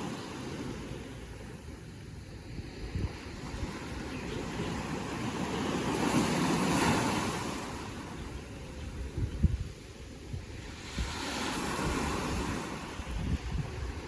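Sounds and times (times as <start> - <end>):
wind buffeting microphone: 0.0 - 14.0
ocean wave breaking: 2.9 - 8.3, 10.6 - 14.0.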